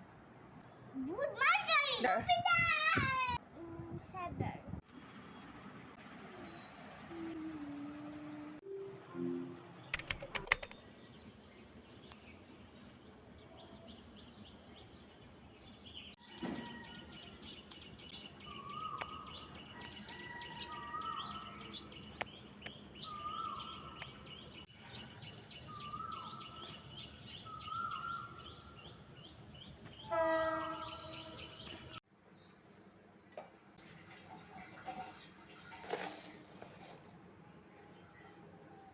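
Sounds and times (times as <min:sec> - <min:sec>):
birds chirping: 0:05.0 - 0:32.6.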